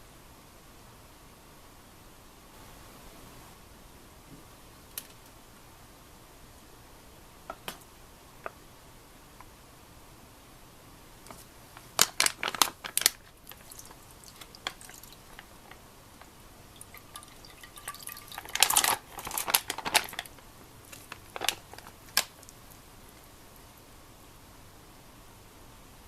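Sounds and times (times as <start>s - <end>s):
clicks and knocks of handling: 18.5s - 22.6s.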